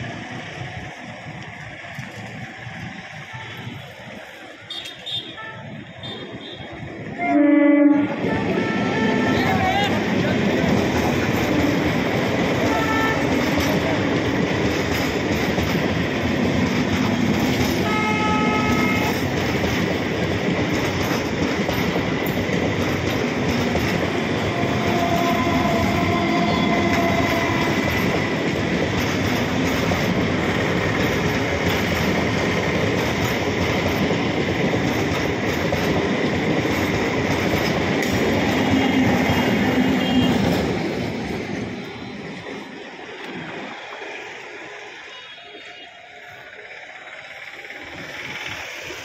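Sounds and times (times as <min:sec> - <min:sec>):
train horn toot: 0:04.7 - 0:10.0, 0:12.6 - 0:13.5, 0:17.8 - 0:19.2, 0:24.4 - 0:28.1, 0:38.6 - 0:40.6, 0:45.1 - 0:46.0
train wheels clattering over rails: 0:08.2 - 0:45.0, 0:46.4 - 0:49.0.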